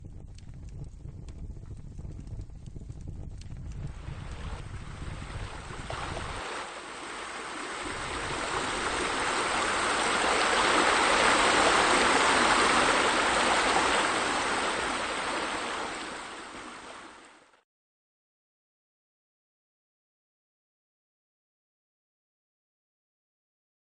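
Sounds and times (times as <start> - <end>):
running splashing water: 3.8 - 17.5.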